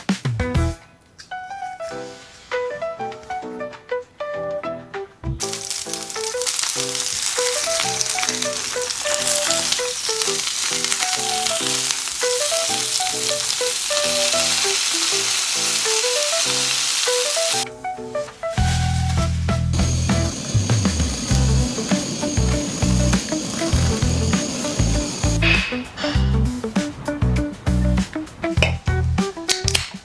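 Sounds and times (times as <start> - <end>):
plucked melody background music: 0.0 - 30.0
chicken sizzling in a frying pan: 5.8 - 17.6.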